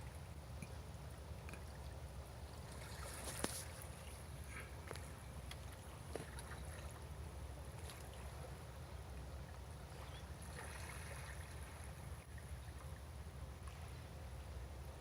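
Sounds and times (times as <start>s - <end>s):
small water splashes: 0.0s - 7.0s, 7.7s - 8.5s, 9.8s - 13.0s
water lapping against breakwater: 0.0s - 8.6s, 9.2s - 14.1s.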